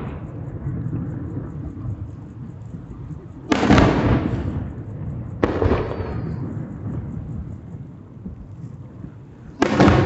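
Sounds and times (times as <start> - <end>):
firework booms: 0.0 - 2.0, 3.5 - 8.4, 9.5 - 10.0
low rumble of echoes: 0.0 - 10.0.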